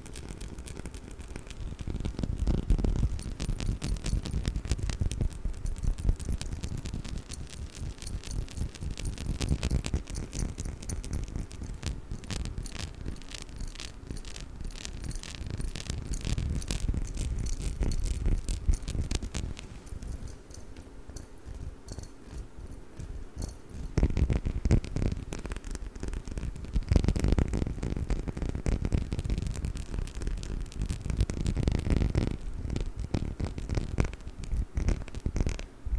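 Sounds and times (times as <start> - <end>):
handling noise: 8.1 - 24.7.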